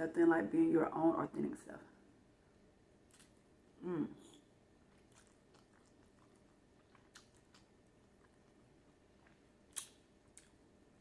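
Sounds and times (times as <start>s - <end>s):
faint chewing: 3.1s - 11.0s
wet mouth clicks and smacks: 4.9s - 8.4s, 9.2s - 10.6s.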